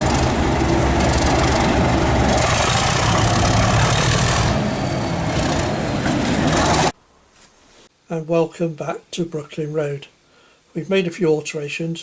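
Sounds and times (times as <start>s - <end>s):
diesel engine sound through small speaker: 0.0s - 5.0s.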